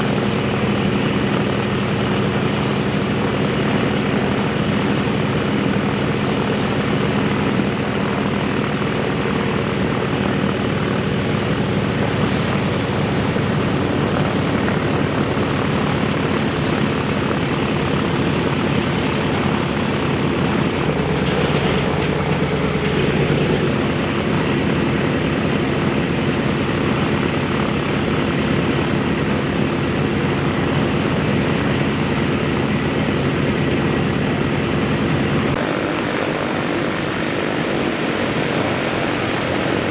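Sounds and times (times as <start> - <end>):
propellers turning: 6.8 - 25.3
radial piston engines droning: 12.8 - 24.7.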